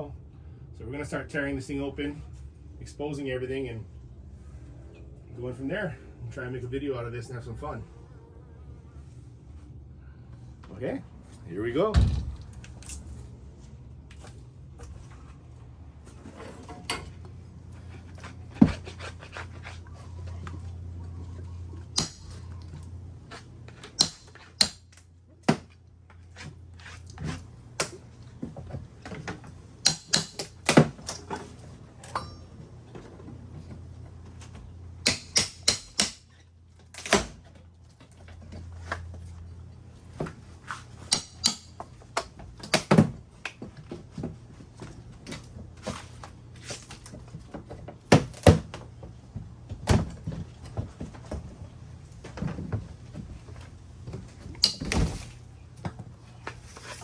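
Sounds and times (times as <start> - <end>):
low steady hum: 0.0 - 57.0
hand tools prying siding: 29.8 - 31.0, 35.0 - 36.4.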